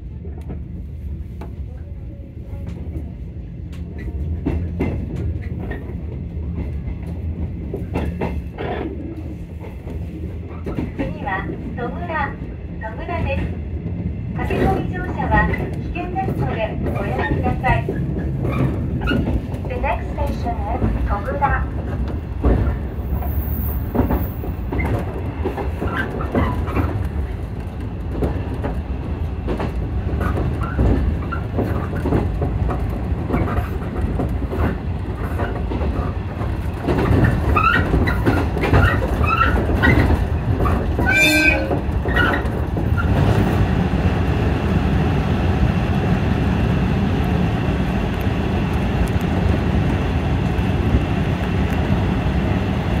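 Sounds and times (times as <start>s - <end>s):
electric train running rumble: 0.0s - 53.0s
wheels clicking over rail joints: 28.0s - 43.6s.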